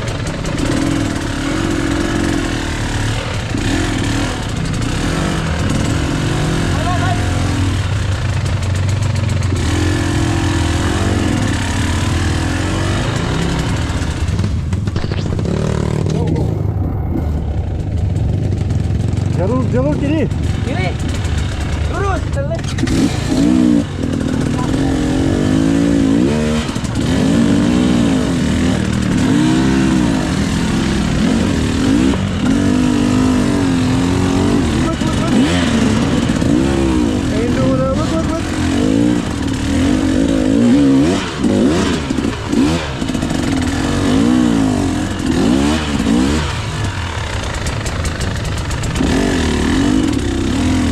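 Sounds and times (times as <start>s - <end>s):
motorcycle engine running: 0.0s - 50.9s
rapid sharp clicks: 46.8s - 50.3s.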